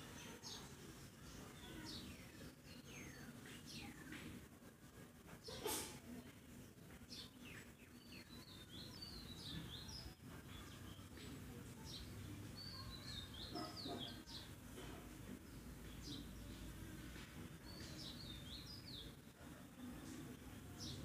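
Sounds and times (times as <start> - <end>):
faint bird chirping: 0.0 - 21.0.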